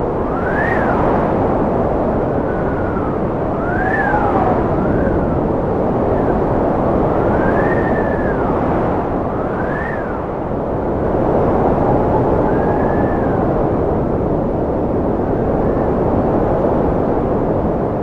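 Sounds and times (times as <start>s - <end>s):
strong wind howling: 0.0s - 18.0s
wind whistle: 0.0s - 18.0s.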